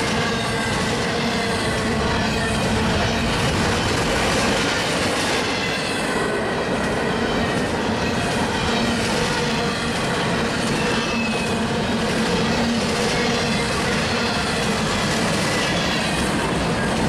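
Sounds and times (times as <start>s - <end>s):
train wheels rumbling on rail joints: 0.0s - 17.0s
high wheel squeal: 7.0s - 16.9s.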